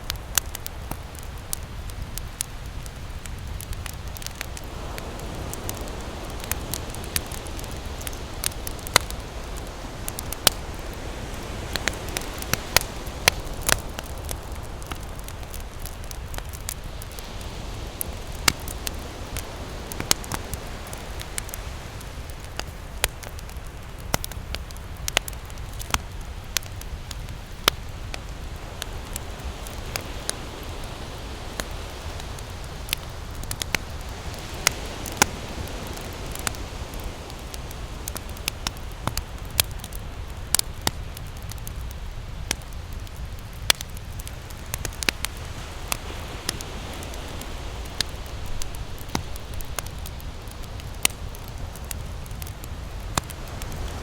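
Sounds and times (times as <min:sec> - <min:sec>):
campfire crackling: 0:00.0 - 0:54.0
ocean waves rushing: 0:02.7 - 0:23.2, 0:26.7 - 0:39.4, 0:44.6 - 0:52.0.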